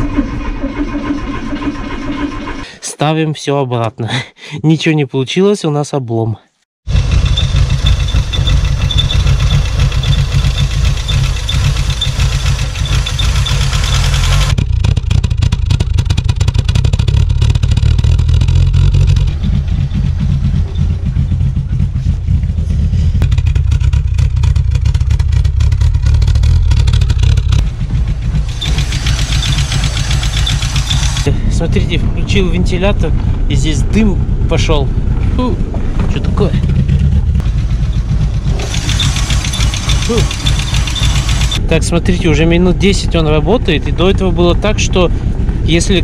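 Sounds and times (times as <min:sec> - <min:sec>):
car engine idling roughly: 0:00.0 - 0:02.7, 0:06.9 - 0:31.9, 0:35.1 - 0:41.6.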